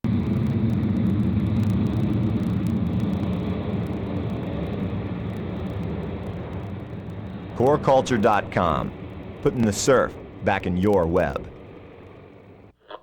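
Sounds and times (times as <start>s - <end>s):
engine rumbling: 0.0s - 12.8s.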